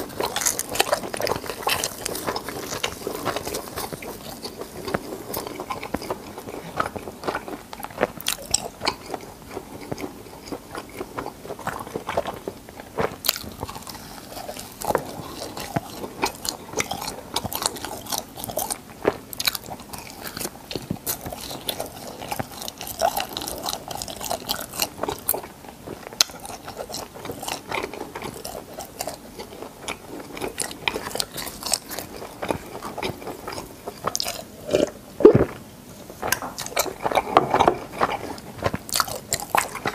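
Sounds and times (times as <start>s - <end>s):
chewing crunchy food: 0.0s - 39.9s
wet mouth sounds: 30.4s - 39.9s.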